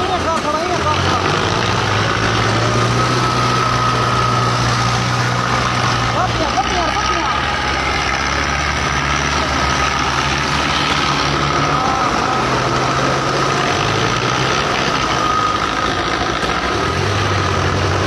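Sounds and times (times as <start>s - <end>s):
tractor diesel engines under load: 0.0s - 18.0s.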